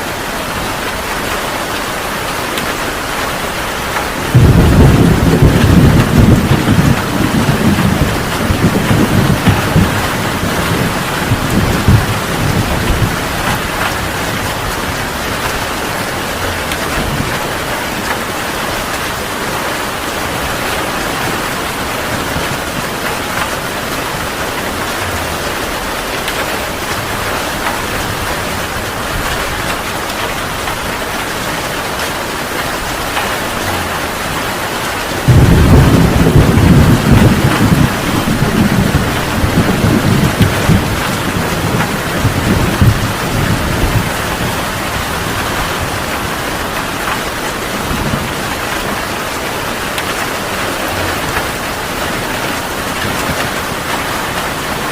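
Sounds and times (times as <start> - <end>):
heavy rain falling: 0.0 - 54.9
thunder rumbling: 0.4 - 54.9
loud thunderclap: 4.0 - 18.3, 32.5 - 49.0.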